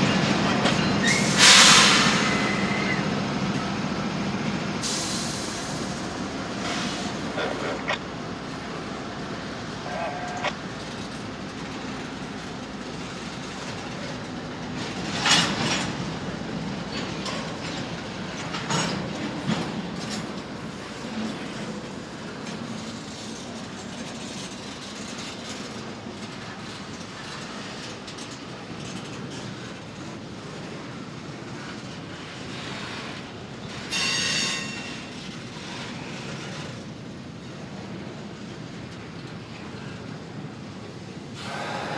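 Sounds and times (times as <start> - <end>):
train wheels rumbling on rail: 0.0 - 41.9
wheels clicking over rail joints: 0.0 - 41.9
high wheel squeal: 0.6 - 3.1, 9.8 - 10.6, 33.8 - 36.6.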